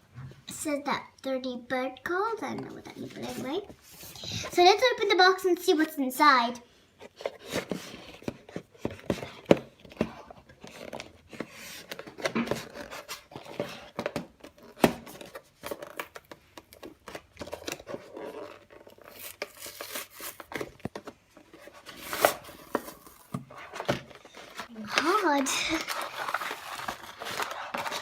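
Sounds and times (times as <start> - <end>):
packaging rustling: 7.2 - 28.0.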